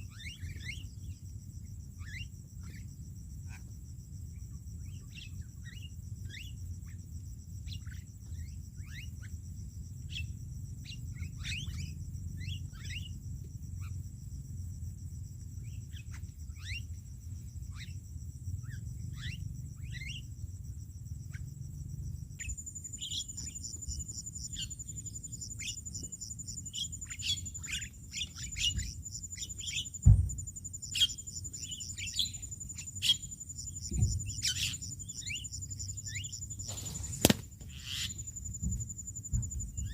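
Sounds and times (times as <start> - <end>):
starlings chirping: 0.0 - 1.2, 10.1 - 13.2, 15.6 - 17.0, 18.6 - 20.4, 22.4 - 39.9
high insect buzz: 0.0 - 39.9
sharp knock: 30.0 - 30.4, 37.2 - 37.4.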